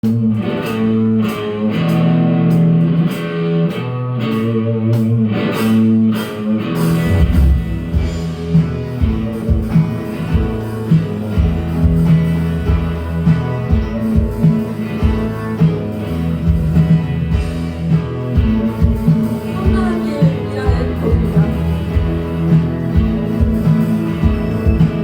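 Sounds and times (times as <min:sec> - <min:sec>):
bass guitar: 0:00.0 - 0:25.0
electric guitar chords: 0:00.0 - 0:25.0
steady low drum beat: 0:06.8 - 0:25.0.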